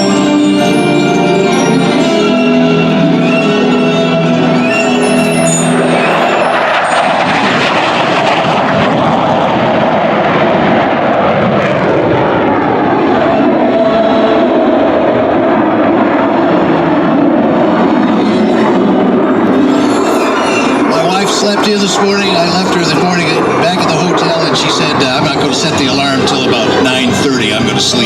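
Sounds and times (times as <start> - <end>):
music: 0.0 - 7.3, 18.2 - 28.0
jet engine roar: 0.0 - 28.0.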